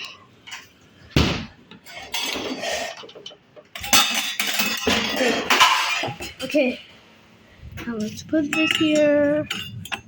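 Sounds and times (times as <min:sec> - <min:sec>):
dishes clattering in a fridge: 0:01.8 - 0:06.8, 0:07.8 - 0:10.0.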